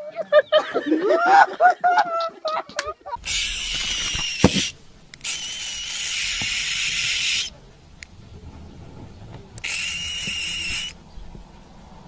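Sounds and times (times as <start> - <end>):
sharp click: 2.8 - 8.2, 9.5 - 11.0.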